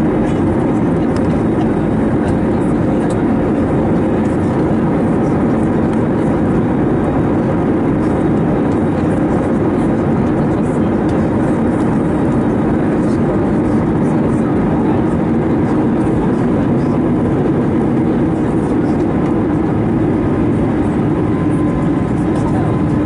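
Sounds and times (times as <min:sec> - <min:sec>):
airplane cabin engine noise: 0:00.0 - 0:23.0.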